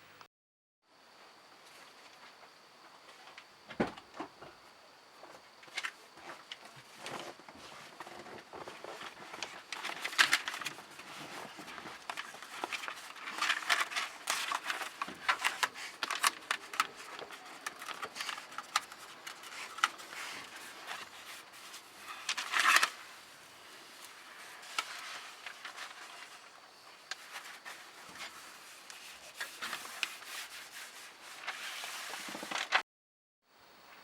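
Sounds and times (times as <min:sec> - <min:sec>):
foam sheet crackling and rustling: 0:05.8 - 0:32.8.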